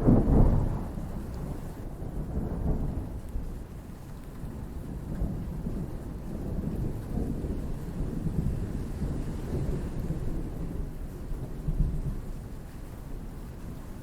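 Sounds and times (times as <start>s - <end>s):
thunder rumbling: 0.0s - 3.3s
steady rain: 0.0s - 14.0s.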